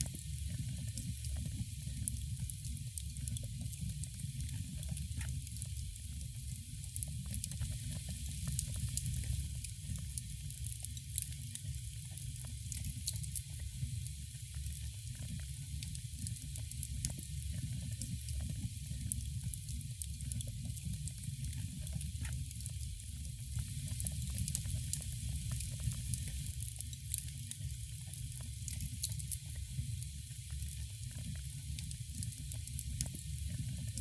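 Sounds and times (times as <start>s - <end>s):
wood fire crackling and popping: 20.0s - 27.8s, 28.4s - 29.8s.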